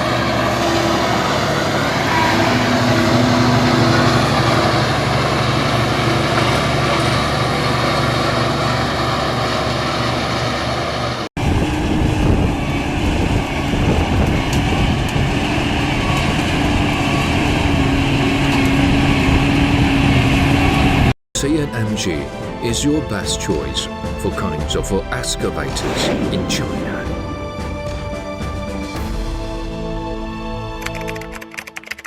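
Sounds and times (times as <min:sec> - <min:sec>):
bulldozer diesel engines running: 0:00.0 - 0:25.2.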